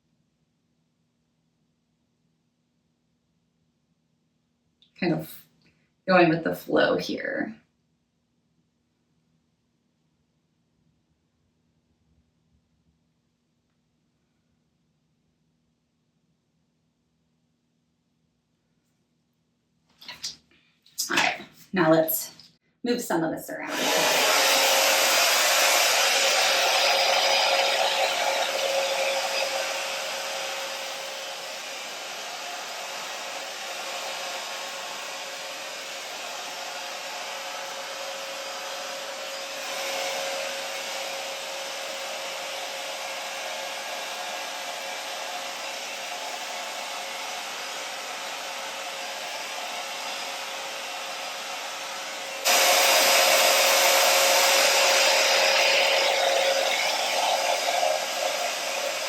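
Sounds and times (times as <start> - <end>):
hair dryer whining hum: 23.6 - 59.0.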